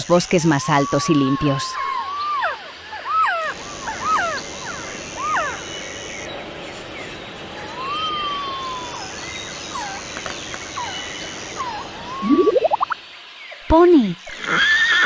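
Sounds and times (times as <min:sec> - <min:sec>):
forest ambience: 0:00.0 - 0:14.9
bird whistling calls: 0:11.7 - 0:13.0.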